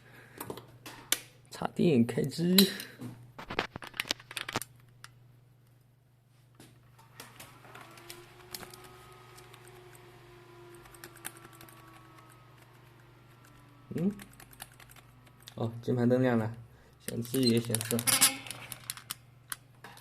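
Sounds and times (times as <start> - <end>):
faint steady hum: 0.0 - 20.0
fan whirring: 6.9 - 19.8.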